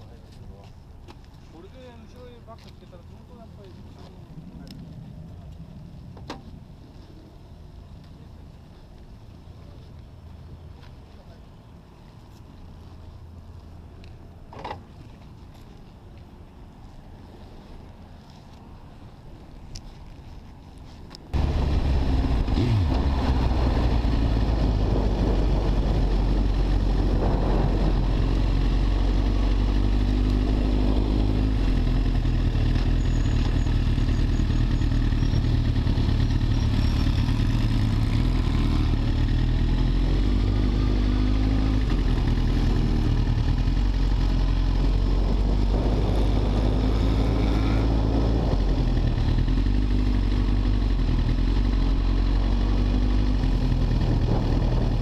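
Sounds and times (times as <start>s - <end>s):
motorcycle engine running: 21.4s - 55.0s.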